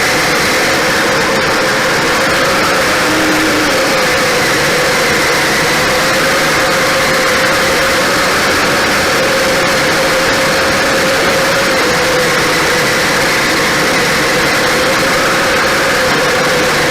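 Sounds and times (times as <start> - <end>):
rushing noise from tracks: 0.0 - 16.9
toy motor whine: 0.0 - 16.9.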